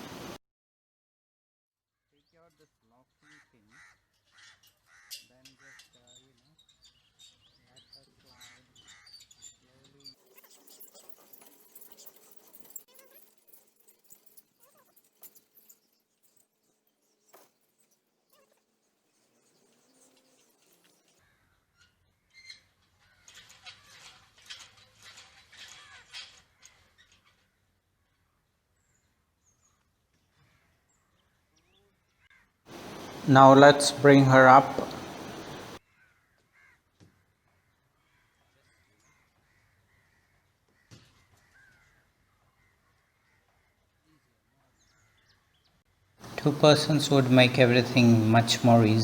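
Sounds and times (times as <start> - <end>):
faint bird calls: 32.7 - 35.8.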